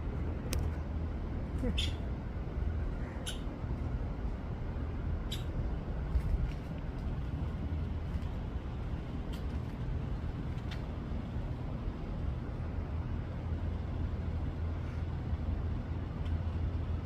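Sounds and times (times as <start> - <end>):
low background rumble: 0.0 - 17.0
faint short clicks: 3.2 - 3.5.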